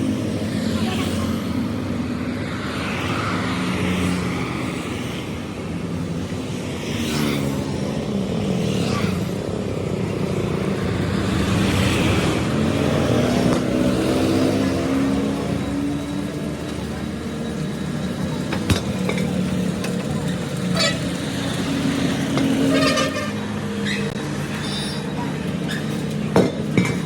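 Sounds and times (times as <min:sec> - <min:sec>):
vehicle engines running: 0:00.0 - 0:27.0.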